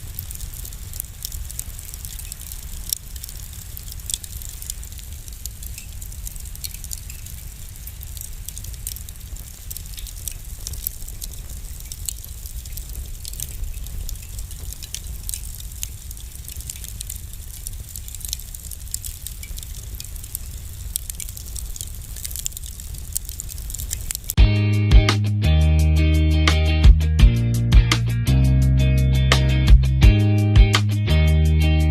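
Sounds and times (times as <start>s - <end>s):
wood fire crackling: 0.0s - 24.4s
low fire rumble: 0.0s - 31.9s.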